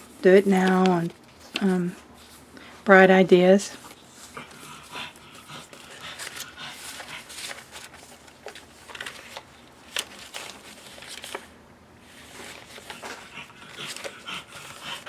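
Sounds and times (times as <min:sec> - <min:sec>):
paper rustling and crinkling: 0:00.0 - 0:02.4, 0:05.5 - 0:15.0.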